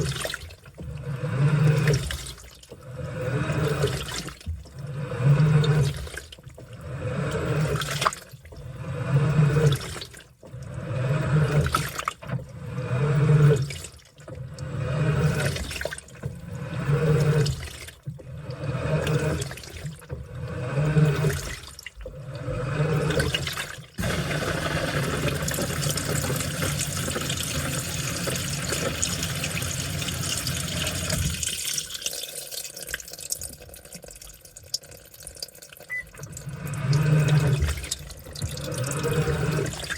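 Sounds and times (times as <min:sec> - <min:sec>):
laundry sloshing in washing machine: 0:00.0 - 0:34.3, 0:35.8 - 0:39.9
water rushing: 0:23.0 - 0:32.0
water dripping: 0:25.2 - 0:39.9.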